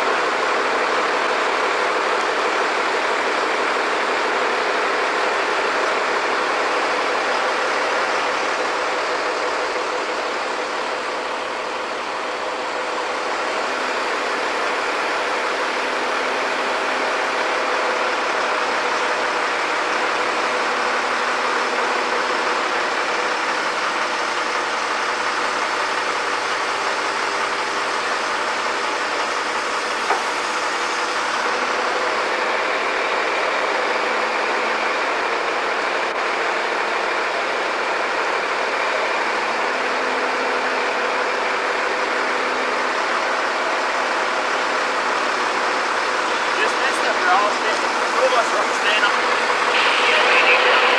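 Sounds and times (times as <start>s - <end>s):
construction equipment engine running: 0.0s - 50.9s.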